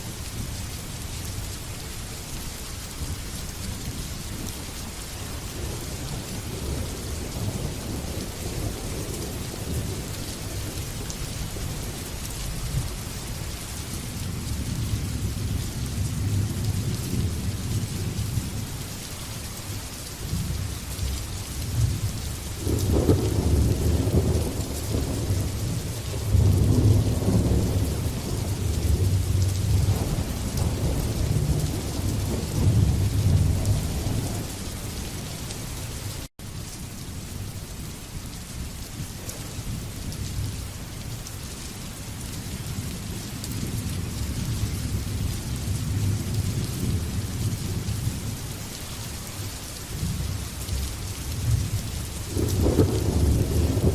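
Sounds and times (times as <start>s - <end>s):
heavy rain: 0.0s - 53.9s
rolling thunder: 21.7s - 35.2s, 51.3s - 53.9s.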